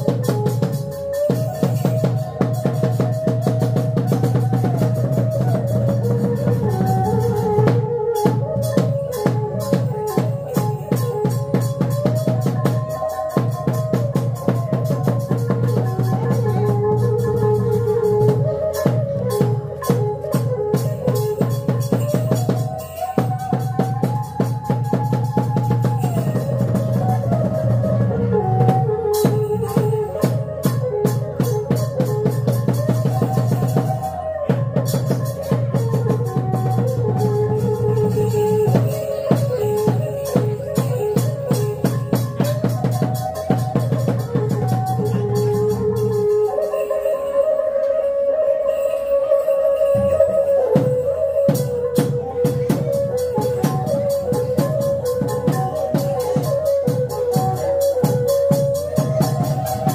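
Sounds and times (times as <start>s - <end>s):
drums beaten quickly: 0.0s - 47.1s, 49.8s - 59.9s
held melody line: 0.0s - 59.9s
melody of held notes: 44.9s - 57.0s.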